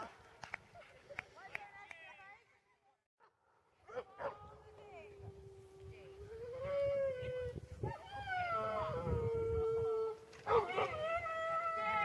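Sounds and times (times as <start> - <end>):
dog howling and whining: 6.4 - 12.0.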